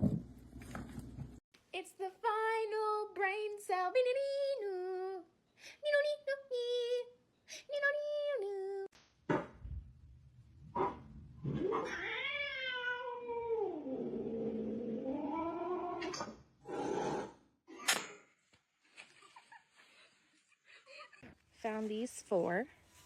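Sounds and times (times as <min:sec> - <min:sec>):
cat yowling: 0:11.6 - 0:13.9.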